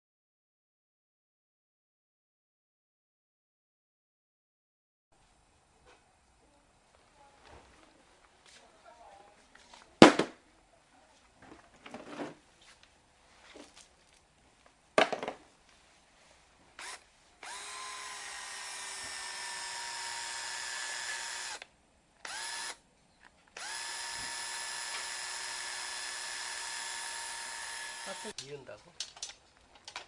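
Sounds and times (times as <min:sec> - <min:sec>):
electric motor whining: 0:16.8 - 0:21.6, 0:23.6 - 0:28.3
tool handling clicks and knocks: 0:28.4 - 0:30.0.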